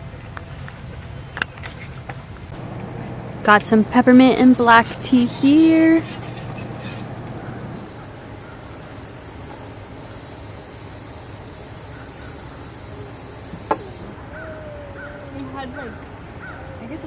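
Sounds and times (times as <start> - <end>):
low steady hum: 2.5 - 16.9
high-pitched insect chorus: 7.9 - 14.0.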